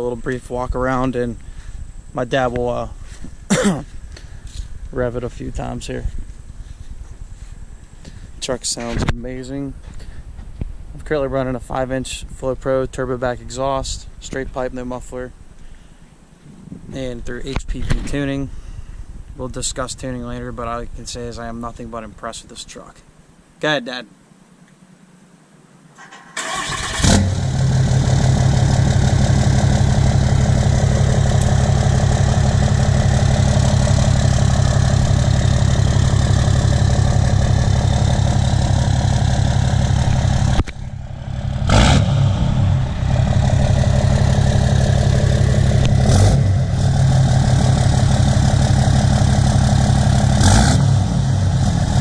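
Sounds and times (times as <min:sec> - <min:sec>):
diesel engine starting and idling: 0:26.0 - 0:52.0.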